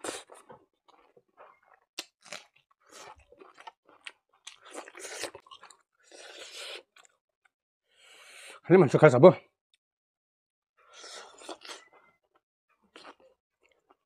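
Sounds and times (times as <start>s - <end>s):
chewing with crunching bites: 0.0s - 7.2s, 10.9s - 14.0s.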